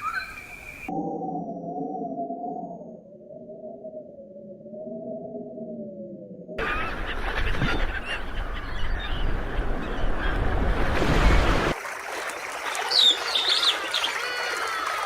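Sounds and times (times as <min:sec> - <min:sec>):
birds calling: 0:06.6 - 0:11.5, 0:12.7 - 0:14.4.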